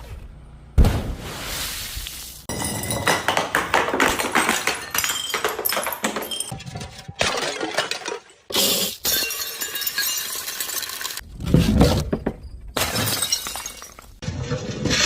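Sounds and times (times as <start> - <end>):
glass shattering and crunching: 7.2 - 11.2, 12.4 - 14.2.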